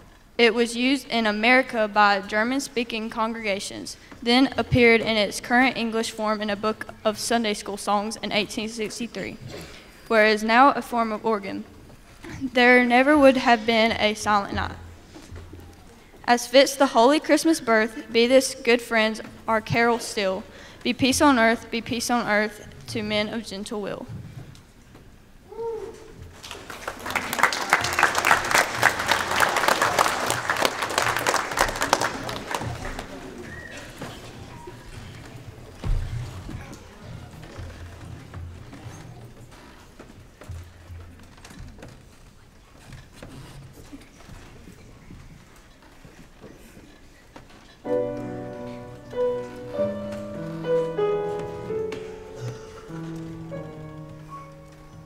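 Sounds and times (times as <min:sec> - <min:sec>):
audience applauding: 0:26.4 - 0:34.0
piano playing slow chords: 0:47.9 - 0:55.0.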